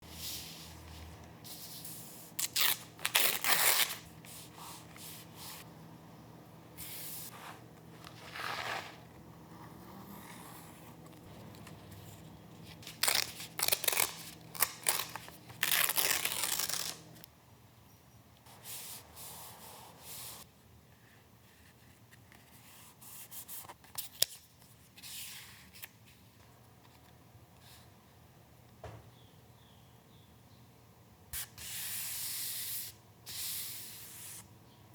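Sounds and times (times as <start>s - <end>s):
paper tearing and rustling: 2.4s - 4.0s, 8.0s - 9.0s, 12.8s - 17.0s.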